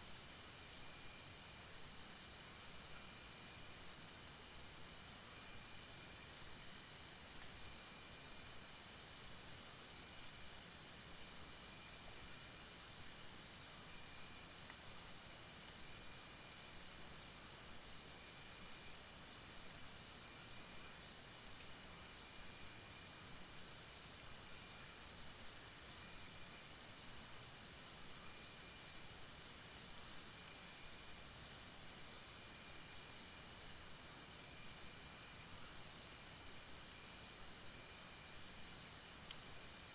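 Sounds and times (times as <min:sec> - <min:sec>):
high insect chirps: 0:11.6 - 0:18.2, 0:18.8 - 0:39.9.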